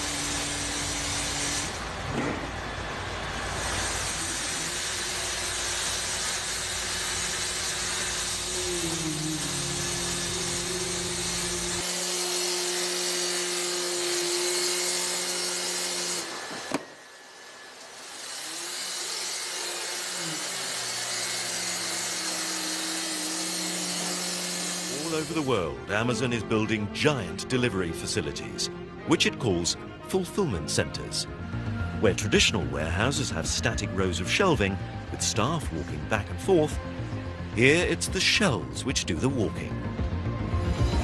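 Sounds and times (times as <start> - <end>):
machinery whirring: 0.0 - 41.0
motor tones sliding in pitch: 7.4 - 11.9.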